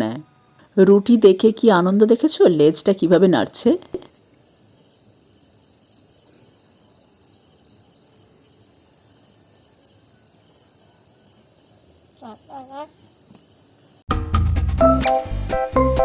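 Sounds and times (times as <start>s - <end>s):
insect pulsing chirp: 3.7s - 14.0s
insect high-pitched trill: 4.0s - 14.0s.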